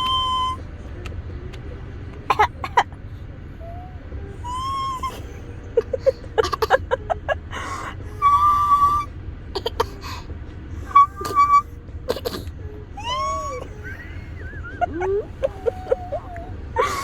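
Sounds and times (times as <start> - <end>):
high whistle-like calls: 0.0 - 0.7, 8.2 - 9.1, 10.9 - 11.7.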